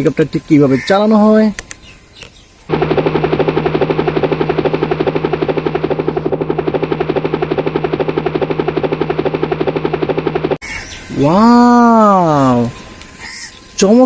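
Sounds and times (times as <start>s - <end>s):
toy helicopter rotor chopping: 2.7s - 10.6s.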